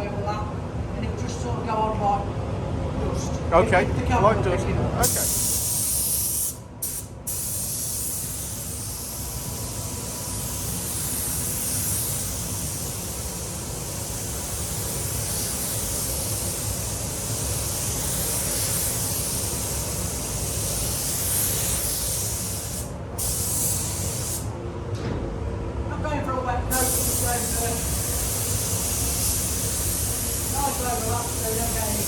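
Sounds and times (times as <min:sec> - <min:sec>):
paint spray gun hissing: 0:05.0 - 0:24.4, 0:26.7 - 0:32.0.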